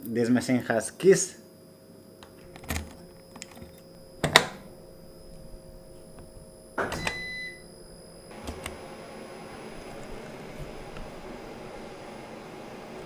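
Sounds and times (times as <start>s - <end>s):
high beep: 7.0s - 7.7s.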